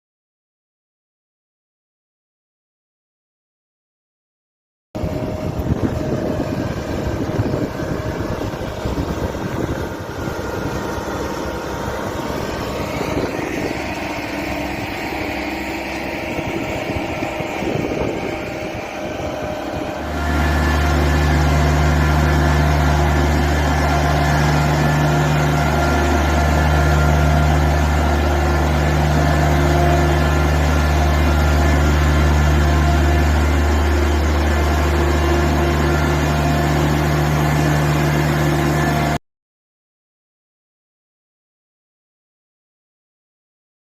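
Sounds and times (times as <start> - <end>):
tractor diesel engine running: 5.0 - 39.2.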